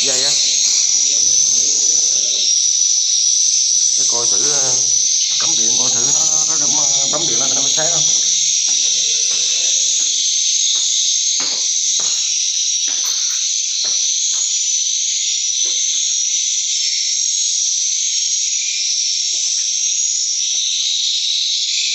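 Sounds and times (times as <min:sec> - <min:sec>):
faint knocks: 0:03.8 - 0:14.6.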